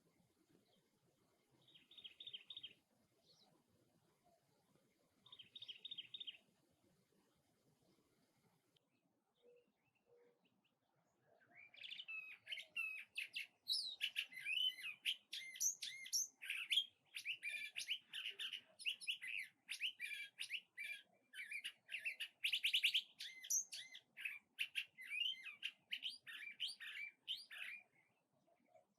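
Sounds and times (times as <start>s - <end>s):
songbird singing: 0.0s - 28.9s.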